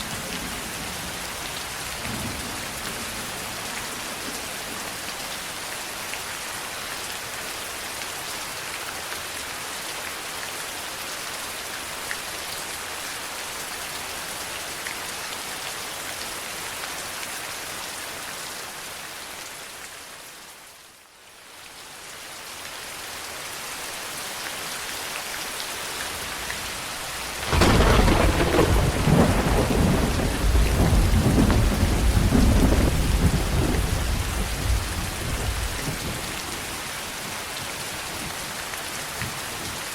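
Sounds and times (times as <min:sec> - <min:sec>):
heavy rain: 0:00.0 - 0:39.9
rolling thunder: 0:26.6 - 0:36.3.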